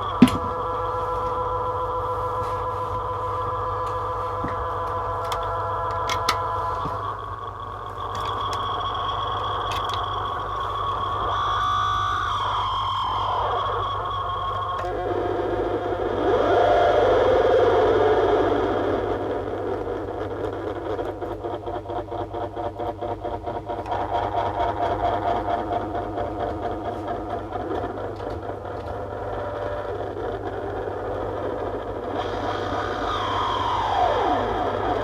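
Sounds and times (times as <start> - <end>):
droning wall of harsh noise: 0.0 - 35.0
steady amplifier hum: 0.0 - 35.0.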